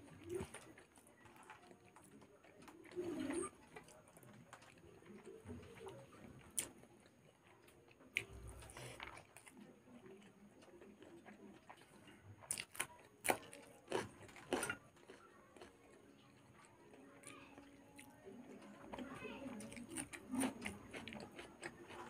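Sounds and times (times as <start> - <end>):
chewing: 0.0 - 22.0
crunching chili: 0.0 - 22.0.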